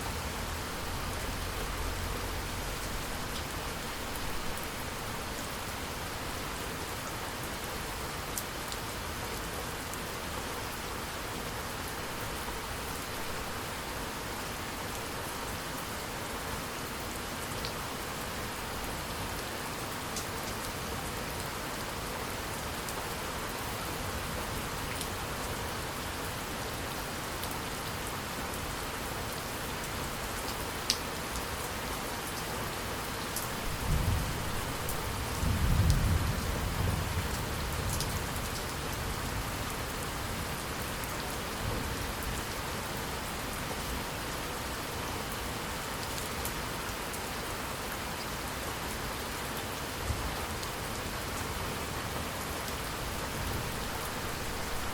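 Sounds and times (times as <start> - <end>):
steady rain: 0.0 - 54.9
raindrops ticking nearby: 30.4 - 31.5.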